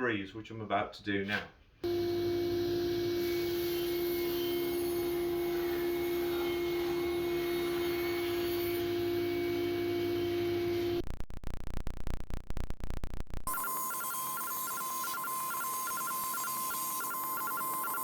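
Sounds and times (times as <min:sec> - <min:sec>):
circular saw whine: 0:01.8 - 0:11.0, 0:13.5 - 0:18.0.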